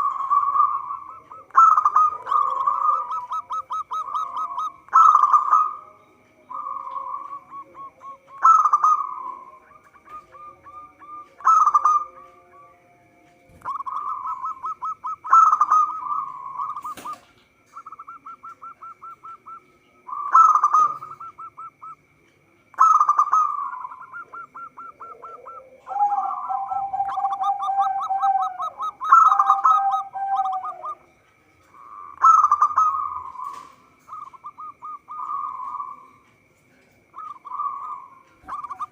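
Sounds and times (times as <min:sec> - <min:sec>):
lower dove coos: 0:00.0 - 0:12.8, 0:13.4 - 0:22.0, 0:22.7 - 0:31.1, 0:31.7 - 0:36.3, 0:37.1 - 0:38.9
doves cooing: 0:00.0 - 0:38.9.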